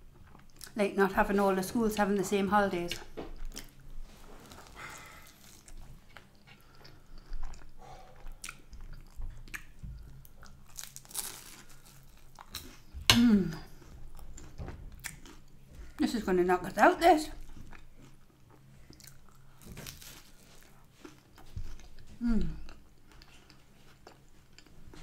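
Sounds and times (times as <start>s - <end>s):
chewing food: 2.9s - 13.0s, 13.6s - 16.0s, 17.4s - 25.0s
small crunches: 10.6s - 12.8s, 18.9s - 22.0s.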